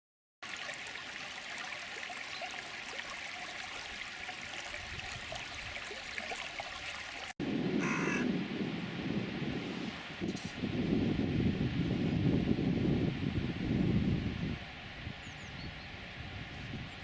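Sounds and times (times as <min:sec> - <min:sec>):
flowing stream rushing: 0:00.4 - 0:07.4.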